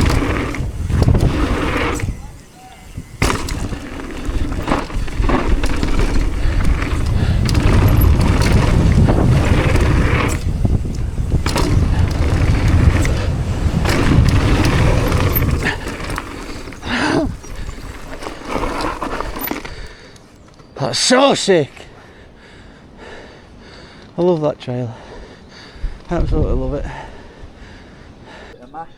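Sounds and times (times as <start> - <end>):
wind buffeting microphone: 0.0 - 20.0
bike rattling over bumps: 0.0 - 21.1
bike tyre rumble on dirt: 0.0 - 21.5.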